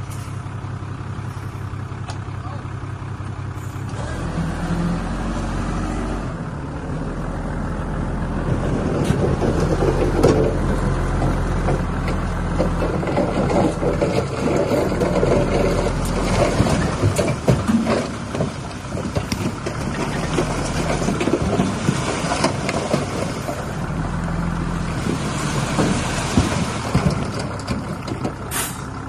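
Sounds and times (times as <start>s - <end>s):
diesel machinery engine running: 0.0s - 29.0s
rough rattling and scraping: 7.7s - 29.0s.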